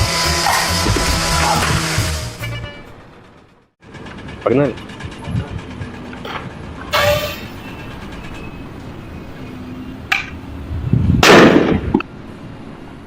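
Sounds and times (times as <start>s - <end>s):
heavy bang: 0.6s - 2.2s
steady background noise: 2.6s - 13.0s.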